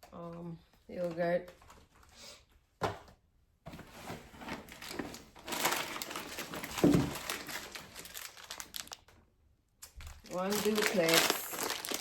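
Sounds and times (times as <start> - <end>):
plastic bags rustling: 4.0 - 9.2, 9.8 - 12.0.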